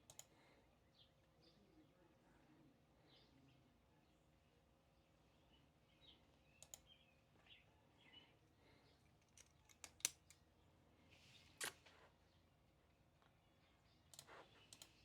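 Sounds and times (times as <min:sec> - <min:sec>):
small sharp clicks and taps: 0:09.2 - 0:10.4.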